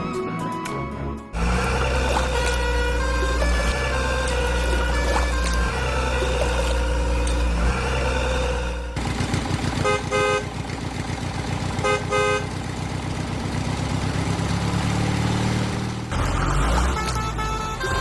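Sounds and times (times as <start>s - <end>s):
truck horn double honks: 1.4s - 9.0s, 9.8s - 10.6s, 11.8s - 12.6s, 16.5s - 18.0s
truck engine chugging: 1.4s - 14.3s.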